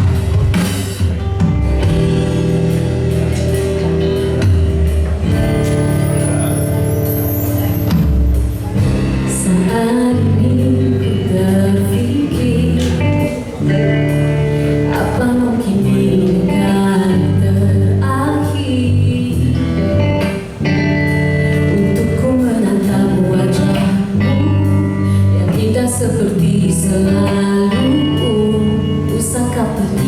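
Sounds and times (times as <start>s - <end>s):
live band playing: 0.0s - 30.0s
woman singing: 9.2s - 13.8s, 14.8s - 20.4s, 21.5s - 30.0s.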